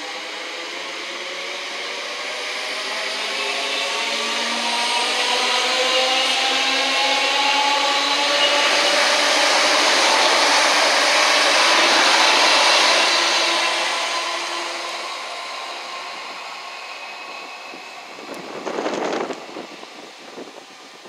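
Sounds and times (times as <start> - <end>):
electric train passing at speed: 0.0 - 21.0.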